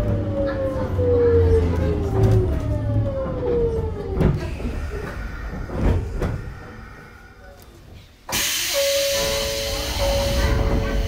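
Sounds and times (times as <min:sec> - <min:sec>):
train knocks: 0:02.0 - 0:07.2, 0:08.3 - 0:11.0.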